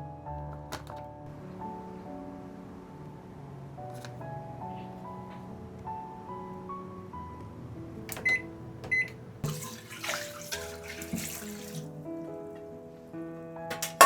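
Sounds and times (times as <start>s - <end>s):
soft background music: 0.0s - 14.0s
tap water running into sink: 8.9s - 11.9s.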